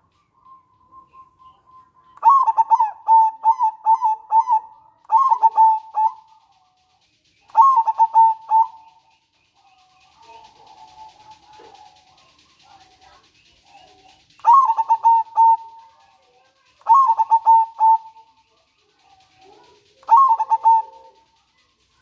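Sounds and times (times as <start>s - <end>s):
dove cooing: 2.1s - 6.6s, 7.4s - 22.0s.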